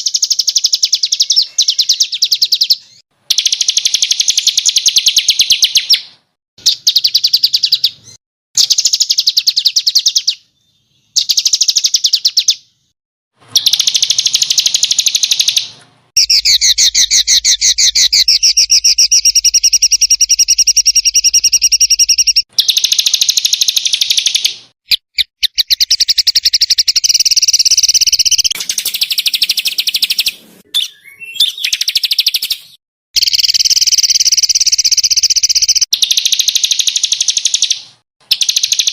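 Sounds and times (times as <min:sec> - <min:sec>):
songbirds trilling: 0:13.6 - 0:24.5, 0:25.2 - 0:32.8.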